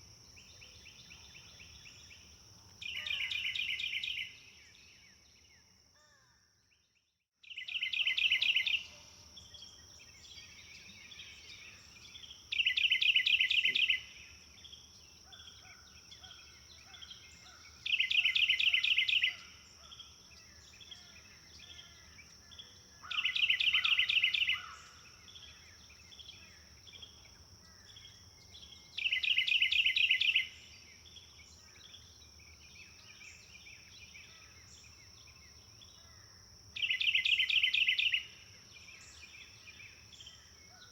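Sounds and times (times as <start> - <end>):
faint bird calls: 0.0 - 5.0, 15.2 - 26.7
songbird trilling: 0.4 - 4.4, 7.5 - 9.0, 10.3 - 14.2, 15.3 - 20.0, 20.7 - 27.2, 27.8 - 30.6, 36.0 - 38.4.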